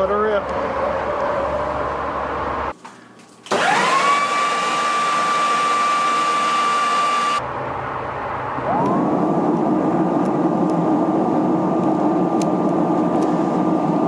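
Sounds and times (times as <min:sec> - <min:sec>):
leaf blower motor whine: 0:03.5 - 0:07.4
rushing air: 0:07.4 - 0:14.0.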